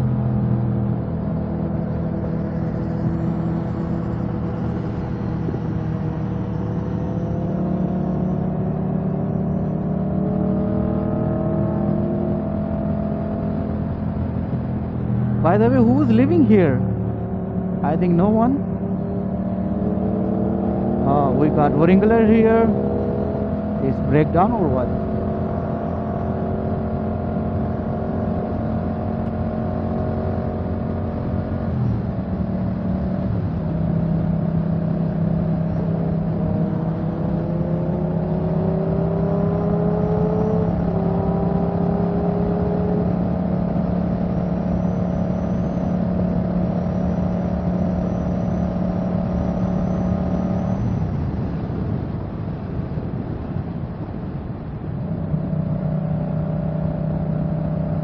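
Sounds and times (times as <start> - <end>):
steady rushing noise: 50.8 - 58.0.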